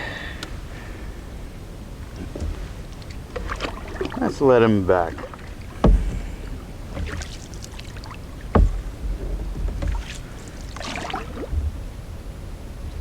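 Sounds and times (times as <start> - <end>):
water splashing and dripping: 2.0 - 11.8
knock against canoe: 2.1 - 11.8.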